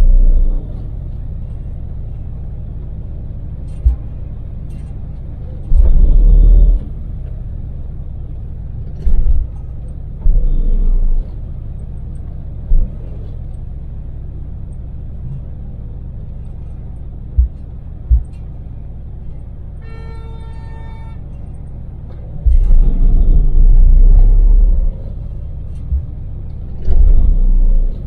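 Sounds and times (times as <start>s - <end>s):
road noise: 0.0s - 28.0s
van engine rumbling: 0.0s - 28.0s
loud low thumps: 5.6s - 7.3s, 10.2s - 11.4s, 12.6s - 13.2s, 17.3s - 18.4s, 22.4s - 28.0s.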